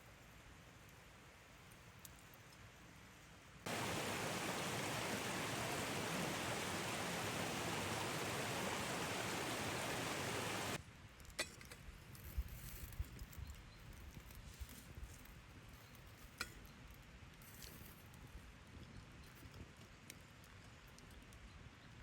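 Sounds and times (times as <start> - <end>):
steady rushing noise: 3.7 - 10.8.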